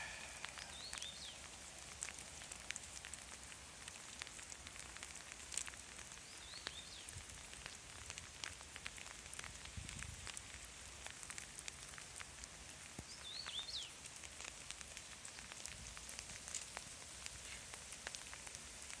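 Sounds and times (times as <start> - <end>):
bird chirp: 0.0 - 1.4
rain falling: 0.0 - 19.0.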